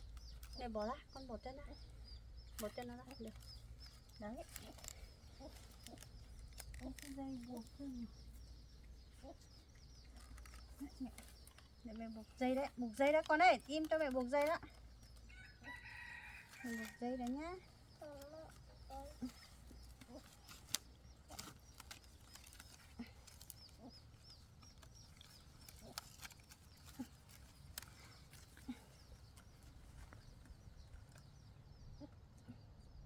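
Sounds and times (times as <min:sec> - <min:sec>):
sharp clicks: 0:00.0 - 0:15.3
small rustles: 0:00.0 - 0:32.8.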